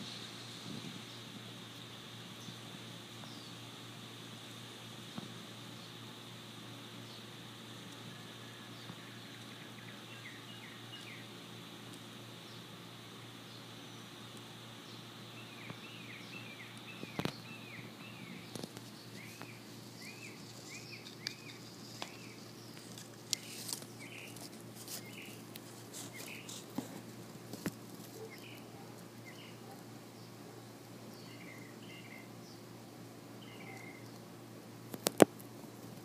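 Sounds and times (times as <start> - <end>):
steady low hum: 0.0 - 36.0
small bird chirping: 14.8 - 26.7, 28.1 - 32.6, 33.4 - 34.2.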